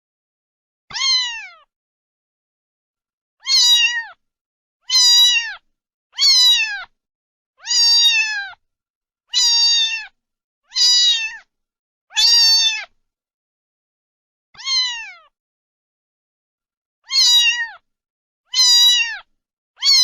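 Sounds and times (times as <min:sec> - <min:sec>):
cat meowing: 0:00.9 - 0:01.7, 0:03.4 - 0:04.2, 0:04.8 - 0:06.9, 0:07.6 - 0:08.6, 0:09.3 - 0:11.5, 0:12.1 - 0:13.0, 0:14.6 - 0:15.4, 0:17.0 - 0:17.8, 0:18.5 - 0:20.0.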